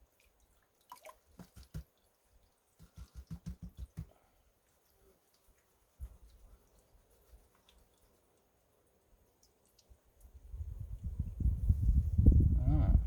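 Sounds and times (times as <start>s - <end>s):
water dripping: 0.0s - 10.7s
plastic pan knocking: 1.4s - 1.9s, 2.8s - 4.2s.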